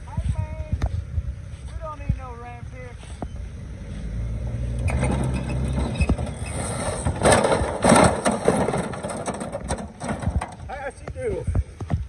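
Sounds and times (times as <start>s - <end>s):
engine humming: 0.0s - 12.0s
lawn mower crashing onto ground: 4.9s - 10.6s.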